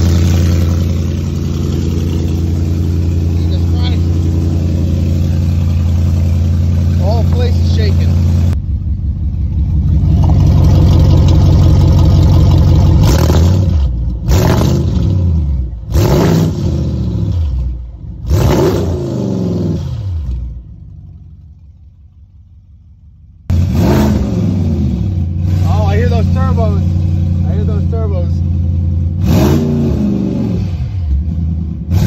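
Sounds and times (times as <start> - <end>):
loud engine idle: 0.0 - 14.4, 20.2 - 23.7
car engine revving: 0.0 - 22.0, 23.4 - 32.0.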